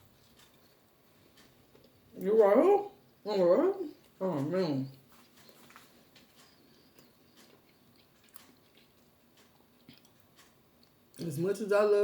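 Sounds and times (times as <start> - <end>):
person chewing: 0.0 - 2.2, 5.0 - 11.2.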